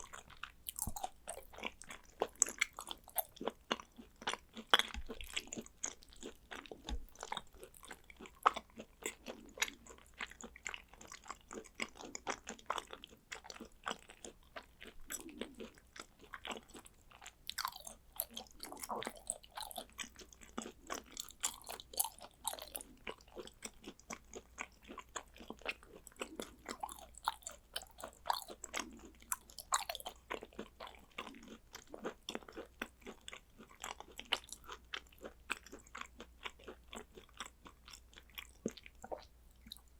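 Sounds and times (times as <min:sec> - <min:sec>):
wet mouth clicks and smacks: 0:00.0 - 0:03.1
chewing soft food: 0:00.0 - 0:39.9.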